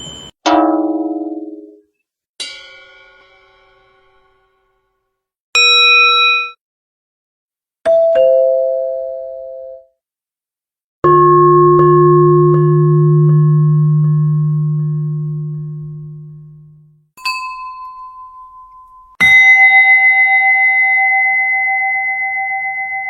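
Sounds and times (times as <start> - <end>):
two-note doorbell chime: 0.0 - 0.4, 7.9 - 9.8, 11.1 - 16.3, 17.2 - 23.0
deep bell ringing: 17.2 - 23.0
short bright ding: 17.2 - 23.0.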